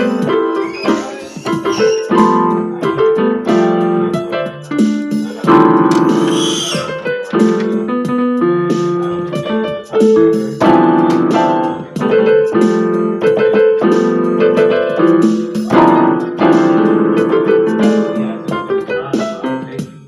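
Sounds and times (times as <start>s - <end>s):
piano playing melody with chords: 0.0s - 20.0s.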